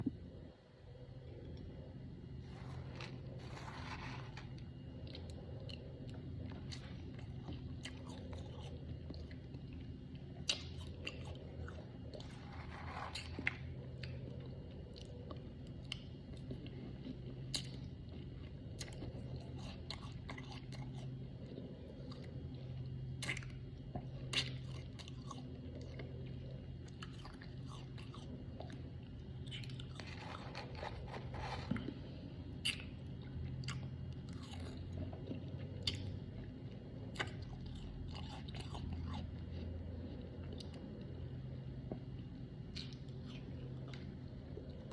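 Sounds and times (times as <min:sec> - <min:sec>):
steady low hum: 0:00.0 - 0:44.9
person chewing crunchy frost: 0:01.1 - 0:44.9.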